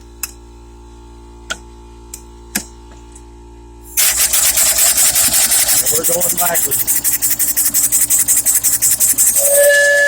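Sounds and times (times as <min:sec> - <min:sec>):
steam exhaust chuffing: 0:04.0 - 0:09.7.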